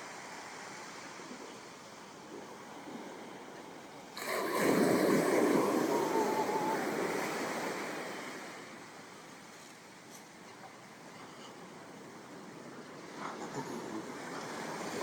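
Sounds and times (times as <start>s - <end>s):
low steady surf: 0.0s - 15.0s
ocean wave breaking on shore: 4.0s - 9.5s, 11.9s - 15.0s.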